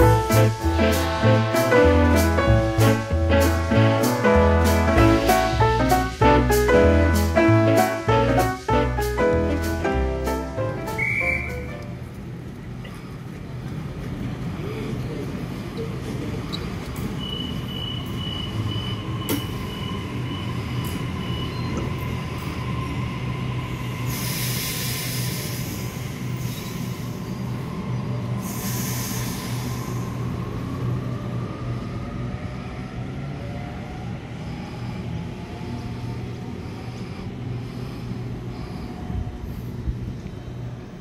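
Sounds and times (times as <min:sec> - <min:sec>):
electric train humming: 0:00.0 - 0:41.0.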